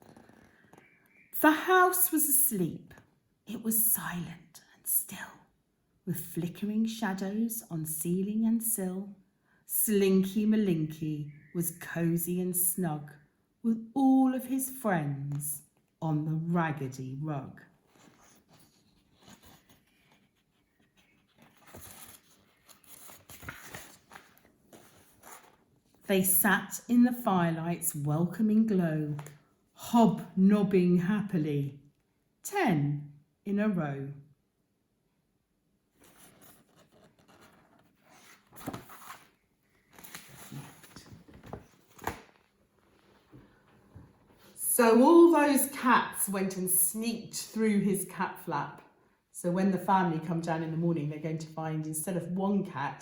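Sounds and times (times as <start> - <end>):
book pages rustling: 0.0 - 1.0, 17.7 - 26.1, 35.9 - 44.6.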